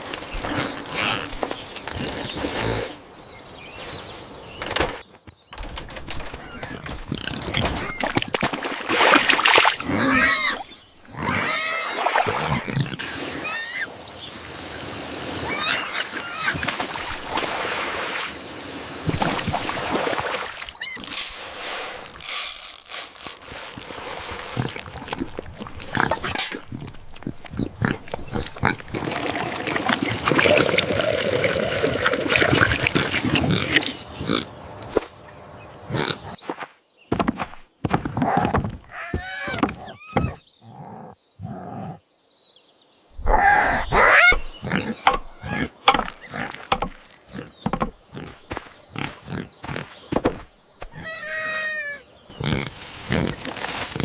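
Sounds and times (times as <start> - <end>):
animal calls: 43.2 - 50.0, 50.8 - 53.4.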